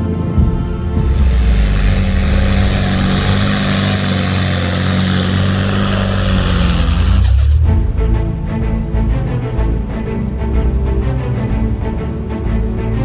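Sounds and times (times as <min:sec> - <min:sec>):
music: 0:00.0 - 0:13.0
broad rushing hiss: 0:00.9 - 0:07.7
tractor engine running: 0:00.9 - 0:07.8.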